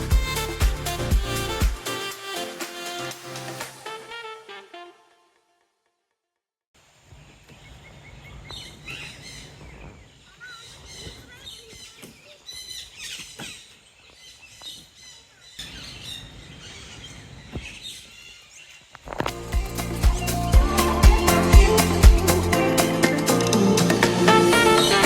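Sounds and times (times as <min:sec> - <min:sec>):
music: 0:00.0 - 0:05.5, 0:19.3 - 0:25.0
birds chirping: 0:07.5 - 0:25.0.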